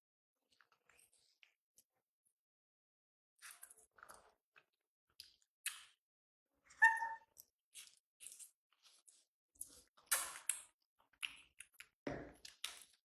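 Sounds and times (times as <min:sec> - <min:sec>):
monkey squeak: 0:06.8 - 0:07.3.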